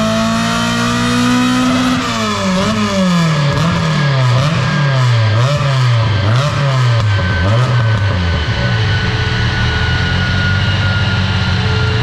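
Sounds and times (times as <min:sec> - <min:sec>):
car engine revving on dyno: 0:00.0 - 0:12.0
faint high whine: 0:07.0 - 0:12.0.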